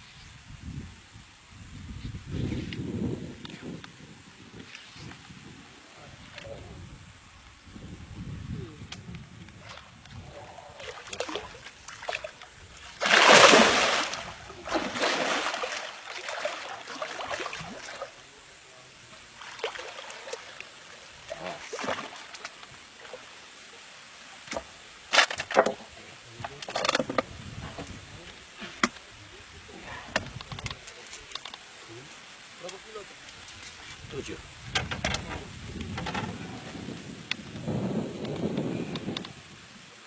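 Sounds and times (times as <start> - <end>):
water splashing: 9.6 - 18.5, 19.1 - 23.6.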